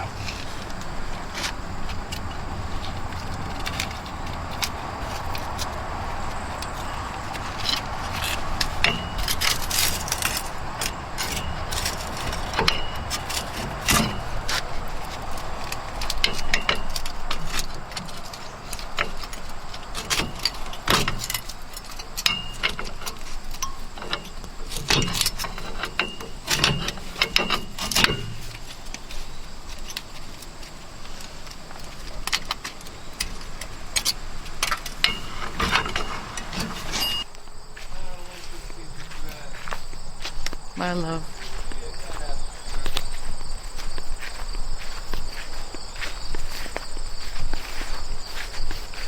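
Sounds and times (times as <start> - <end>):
metal tools clinking on metal: 0.0 - 37.4.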